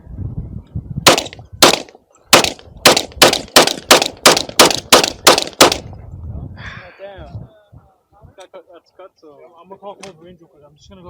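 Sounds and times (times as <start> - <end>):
gunshots in rapid succession: 1.1 - 5.8.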